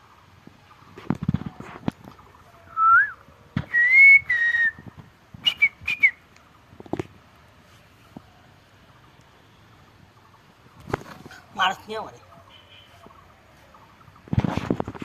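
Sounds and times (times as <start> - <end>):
person whistling: 2.8 - 4.8, 5.4 - 6.2.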